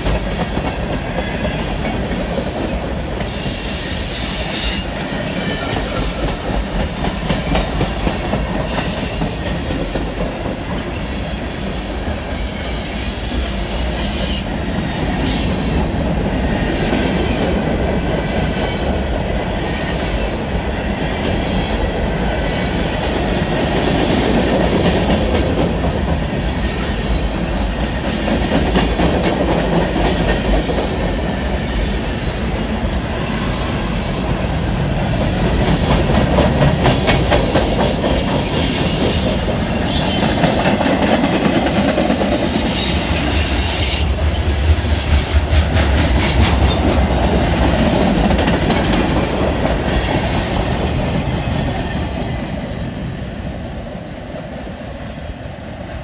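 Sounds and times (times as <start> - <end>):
train wheels rumbling on rail: 0.0 - 56.0
high wheel squeal: 3.2 - 9.6, 38.6 - 40.8, 42.6 - 44.2.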